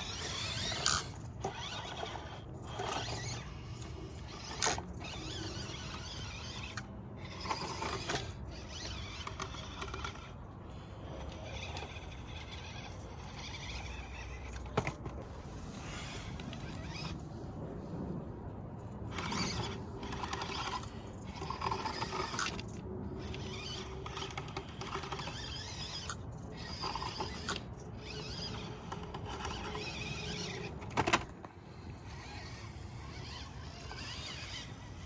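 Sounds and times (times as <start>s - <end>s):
small gear-drive whirring: 0.0s - 35.0s
plastic scraping and clicking: 11.5s - 15.3s, 19.2s - 31.6s.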